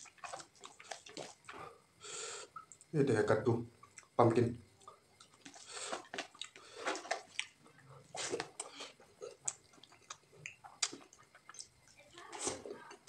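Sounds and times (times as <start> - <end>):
wet chewing and lip smacks: 0.0 - 1.6, 3.8 - 4.2, 4.8 - 12.1.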